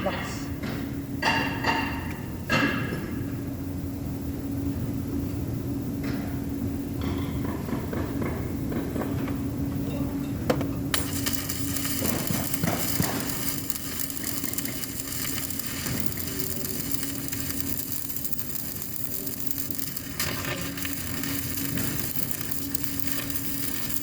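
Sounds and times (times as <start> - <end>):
low hum: 10.8 - 24.0
welding arc crackling: 10.9 - 24.0.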